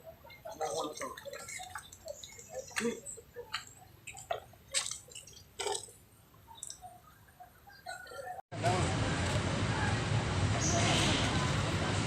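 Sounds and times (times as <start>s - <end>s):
water splashing and dripping: 0.5s - 6.9s.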